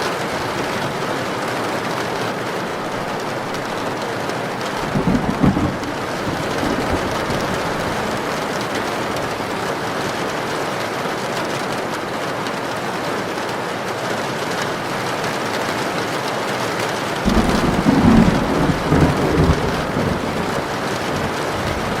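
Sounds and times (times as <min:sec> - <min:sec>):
heavy rain: 0:00.0 - 0:22.0
thunder rumbling: 0:04.7 - 0:10.0, 0:17.2 - 0:22.0.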